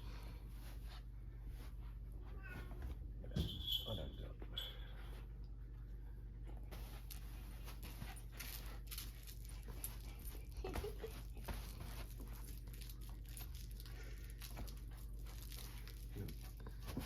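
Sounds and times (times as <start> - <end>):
dog chewing crinkly toy: 6.9 - 17.0.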